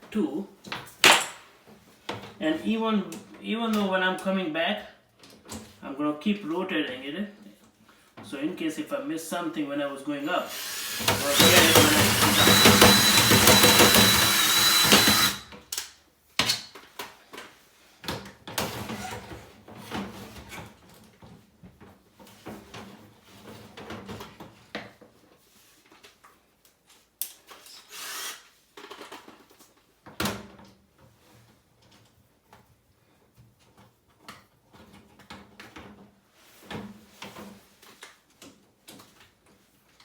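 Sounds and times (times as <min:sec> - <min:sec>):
drill spinning: 0:10.4 - 0:15.5, 0:27.9 - 0:28.4.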